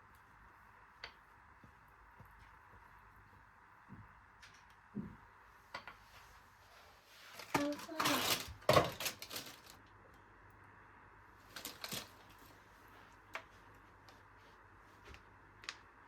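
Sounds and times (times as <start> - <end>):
faint room hum: 0.0 - 16.0
rustling scrape: 6.2 - 9.8
clatter of objects handled: 7.3 - 9.8, 11.5 - 12.5.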